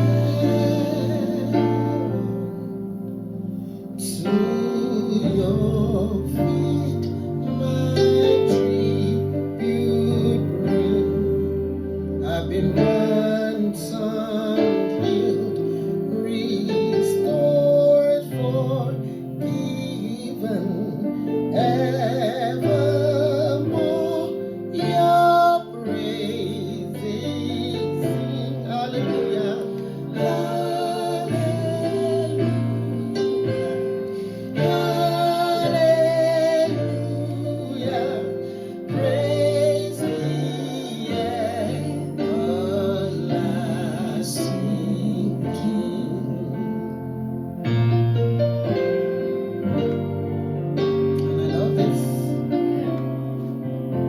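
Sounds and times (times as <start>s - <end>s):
instrumental accompaniment: 0.0s - 54.0s.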